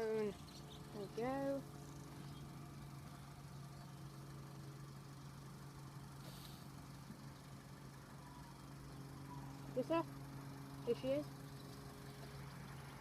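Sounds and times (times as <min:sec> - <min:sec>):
engine idling hum: 0:00.0 - 0:13.0
brief faint hiss: 0:06.2 - 0:06.7.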